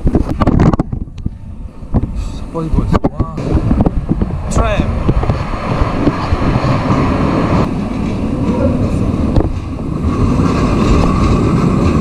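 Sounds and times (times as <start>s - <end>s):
tram rumbling past: 3.4s - 12.0s.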